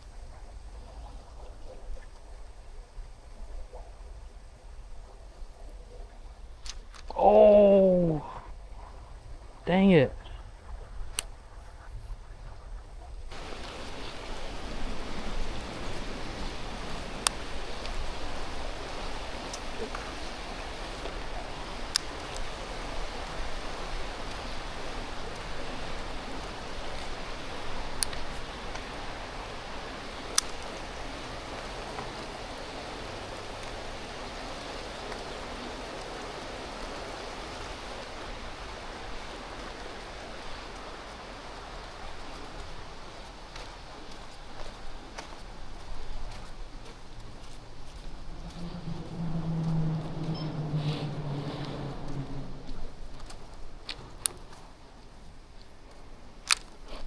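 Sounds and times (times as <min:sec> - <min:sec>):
faint sharp clicks: 0:06.6 - 0:07.2, 0:11.1 - 0:11.4, 0:13.3 - 0:32.7, 0:41.6 - 0:57.0
creek water rushing: 0:07.0 - 0:08.3, 0:13.3 - 0:57.0.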